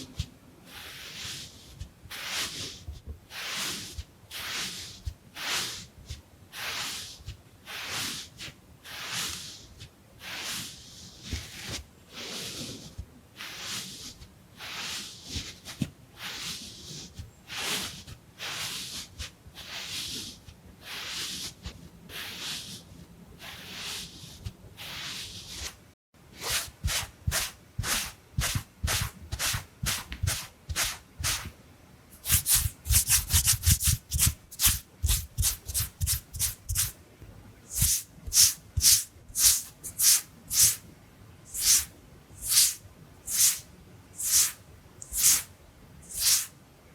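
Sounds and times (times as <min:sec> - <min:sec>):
wipe rubbing on face: 0:26.4 - 0:31.5, 0:32.1 - 0:37.0, 0:37.7 - 0:40.8, 0:41.5 - 0:46.6
fast loud scrubbing with thumps: 0:32.2 - 0:36.9.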